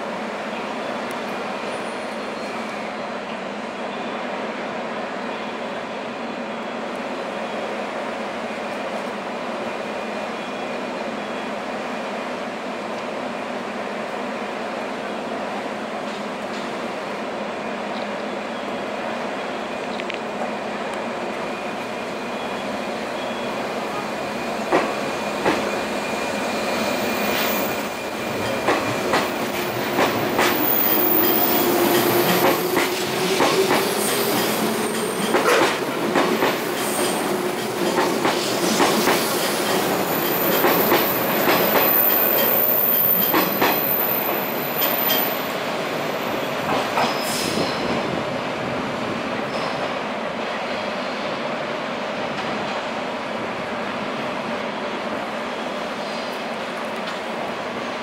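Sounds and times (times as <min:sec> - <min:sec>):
train wheels clacking over joints: 0:27.2 - 0:42.6.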